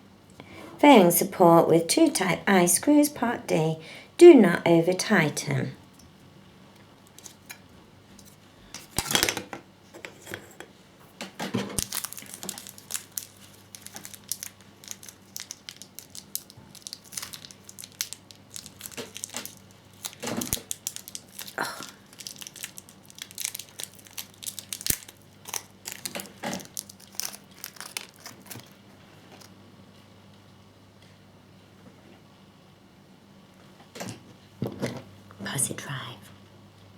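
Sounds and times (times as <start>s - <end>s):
packaging crinkling: 11.5s - 29.5s.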